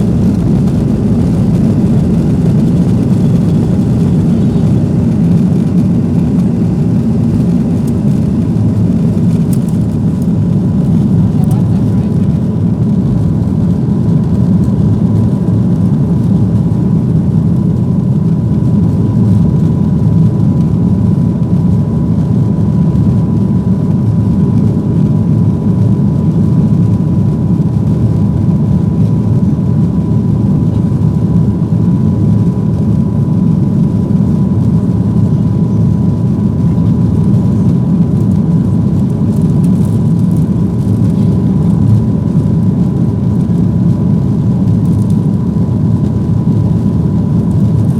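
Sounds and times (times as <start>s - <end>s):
thin steady whine: 0.0s - 14.8s
airplane cabin rumble: 0.0s - 47.9s.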